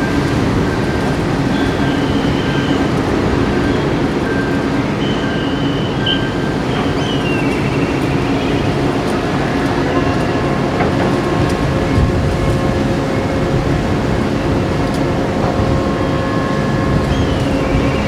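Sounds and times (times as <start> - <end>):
ship engines rumbling: 0.0 - 18.0.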